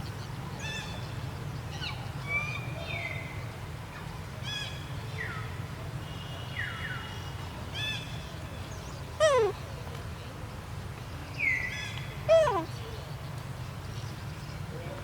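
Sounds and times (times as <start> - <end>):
high-pitched animal calls: 9.2 - 9.6, 12.3 - 12.7.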